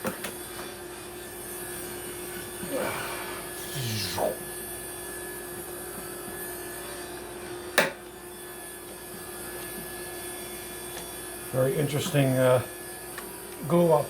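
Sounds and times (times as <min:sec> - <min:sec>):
shop machine humming: 0:02.6 - 0:04.7.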